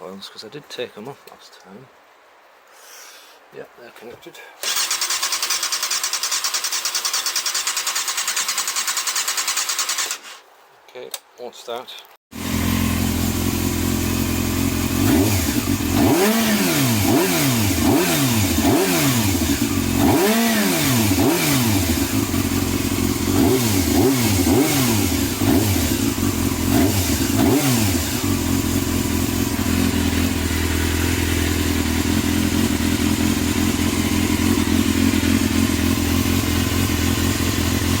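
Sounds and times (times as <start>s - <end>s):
motorcycle engine revving and idling: 12.4s - 38.0s.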